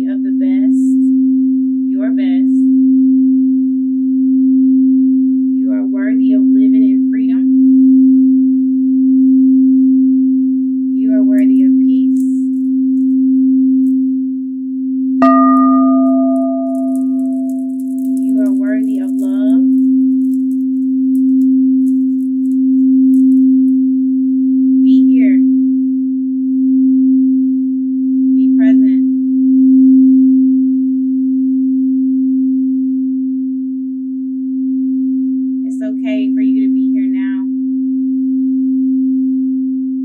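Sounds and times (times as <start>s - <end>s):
singing bowl humming: 2.5s - 35.6s
singing bowl struck tone: 15.2s - 24.8s.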